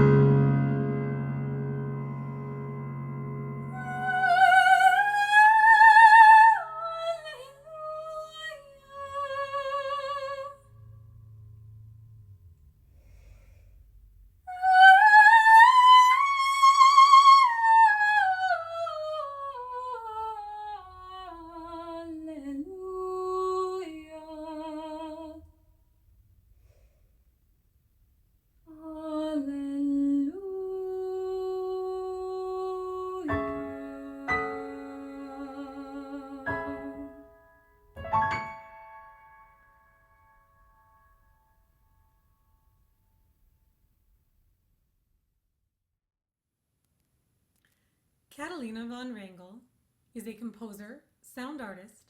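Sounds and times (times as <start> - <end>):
piano chord: 0.0 - 4.2, 33.3 - 35.5, 36.3 - 41.5.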